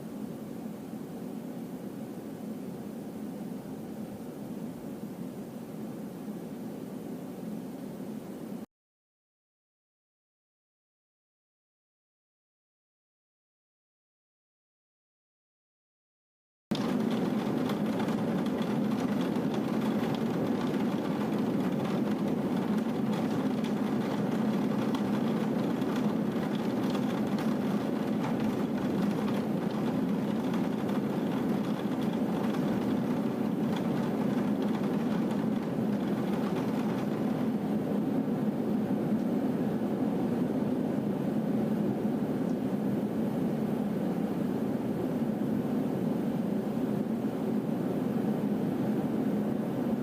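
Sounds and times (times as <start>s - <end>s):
rushing downpour: 16.8s - 37.5s.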